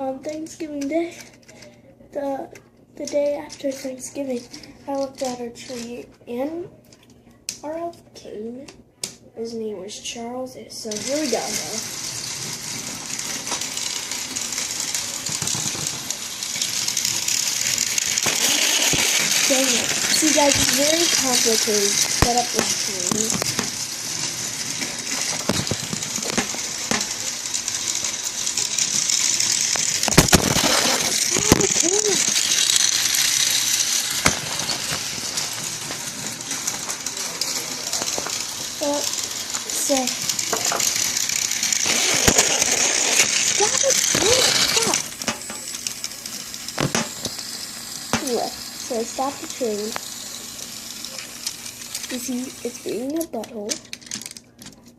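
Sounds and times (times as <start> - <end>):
toy train motor whirring: 3.0 - 6.5, 10.8 - 54.9
wheels rattling on track: 10.9 - 53.4.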